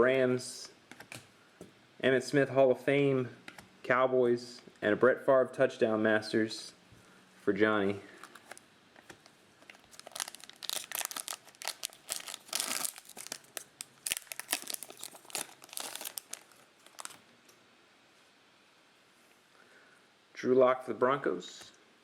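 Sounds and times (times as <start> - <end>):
plastic wrapper crinkling and tearing: 8.2 - 17.2.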